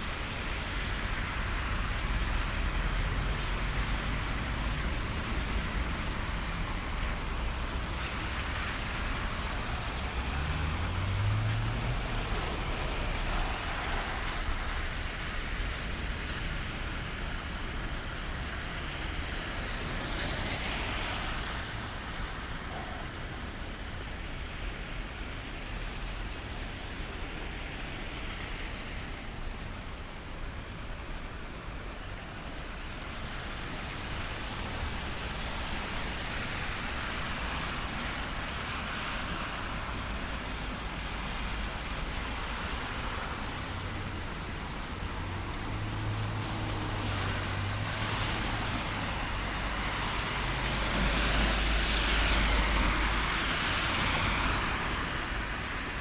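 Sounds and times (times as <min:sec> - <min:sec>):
rain: 0:00.0 - 0:56.0
tyres hissing on wet road: 0:00.0 - 0:56.0
low engine hum: 0:00.2 - 0:17.6
vehicle passing: 0:08.2 - 0:14.5.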